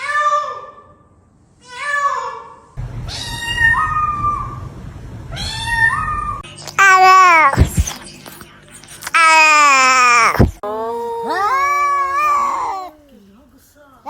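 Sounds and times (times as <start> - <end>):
low background hum: 0.0 - 14.0
cats meowing: 9.0 - 13.1.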